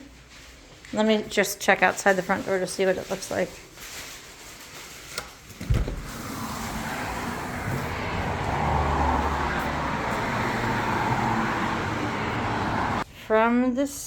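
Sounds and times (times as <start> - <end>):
street traffic noise: 5.6 - 13.0
vehicle passing: 6.0 - 13.0.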